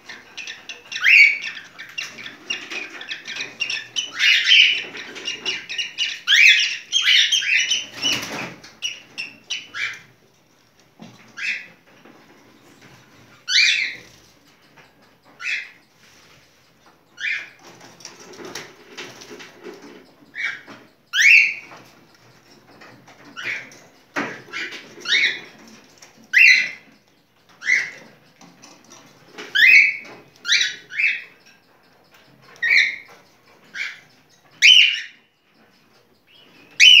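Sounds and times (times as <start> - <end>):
cockatiel whistling song: 0.5 - 10.0, 20.3 - 21.8, 24.5 - 25.5, 26.3 - 26.8, 29.5 - 31.3, 34.6 - 35.2, 36.3 - 37.0.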